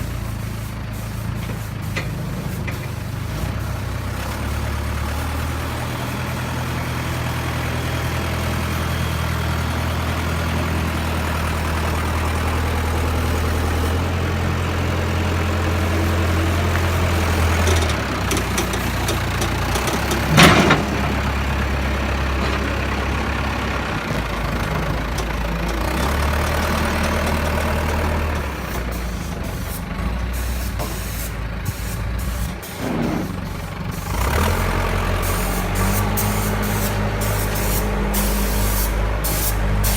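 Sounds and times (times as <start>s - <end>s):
heavy engine humming: 0.0s - 39.9s
short loud hiss or bang: 30.4s - 33.4s.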